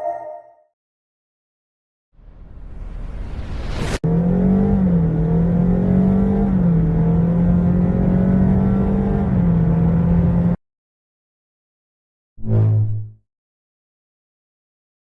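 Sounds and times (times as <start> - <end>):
car engine accelerating hard: 2.5 - 10.6.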